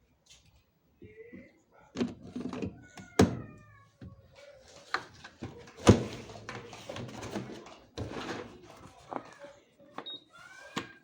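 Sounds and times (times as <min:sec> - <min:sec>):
clatter and rustling: 0:04.7 - 0:09.4.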